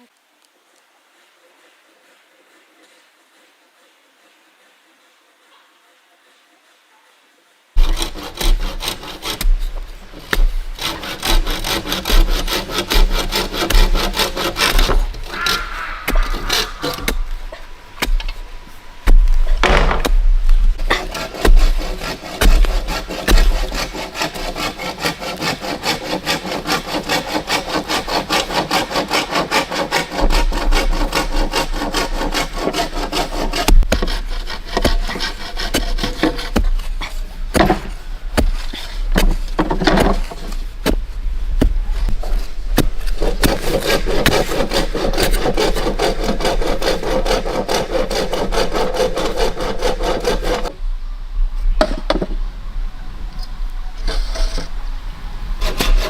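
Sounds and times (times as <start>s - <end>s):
hand saw cutting wood: 7.8s - 18.4s, 20.8s - 41.0s, 42.0s - 50.7s, 55.6s - 56.0s.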